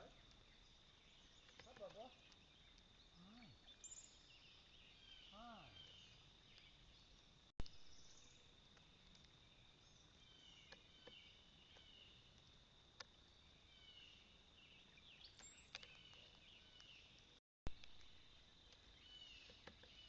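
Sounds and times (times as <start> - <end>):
high insect drone: 0.0 - 7.0
soft bird chirps: 0.0 - 12.4, 13.4 - 20.0.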